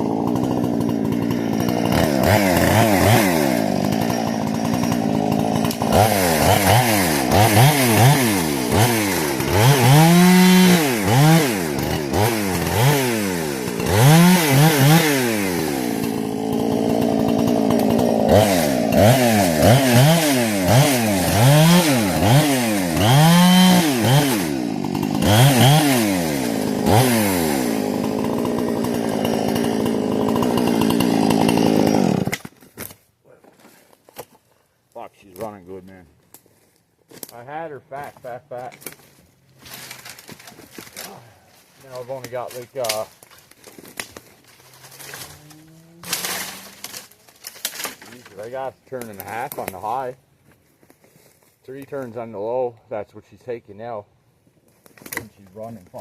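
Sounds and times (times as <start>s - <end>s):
chainsaw revving: 0.0s - 32.4s, 44.0s - 50.0s.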